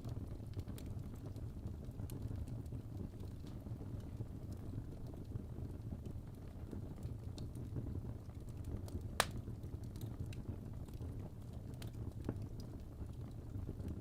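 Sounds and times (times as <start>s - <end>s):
fire crackling in a fireplace: 0.0s - 14.0s.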